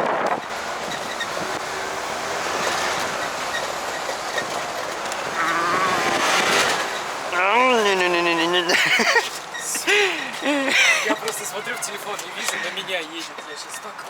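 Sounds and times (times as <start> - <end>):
wind noise: 0.0 - 1.9
moped engine rattling: 0.0 - 14.0
rising pitched sound: 5.3 - 6.9.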